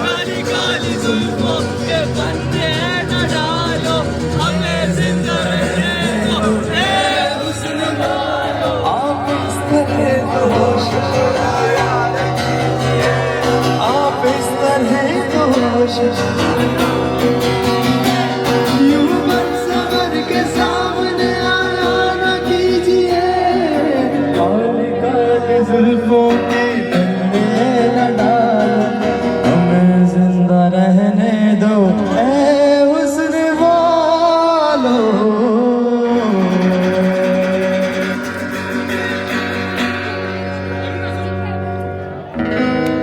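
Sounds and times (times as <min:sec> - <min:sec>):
instrumental accompaniment: 0:36.2 - 0:43.0.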